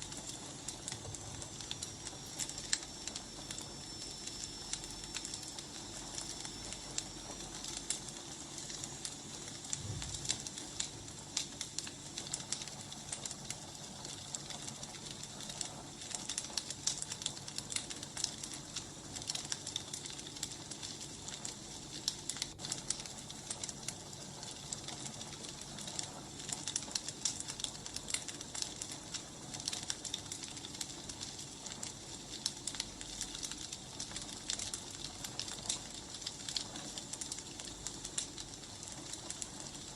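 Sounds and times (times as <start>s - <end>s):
low hiss: 0.0s - 13.6s
firewood crackling and popping: 0.0s - 39.9s.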